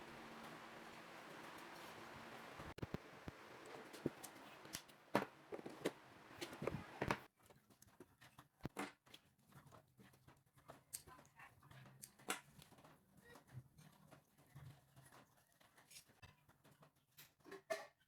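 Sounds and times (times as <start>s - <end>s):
steady hiss: 0.0s - 7.3s.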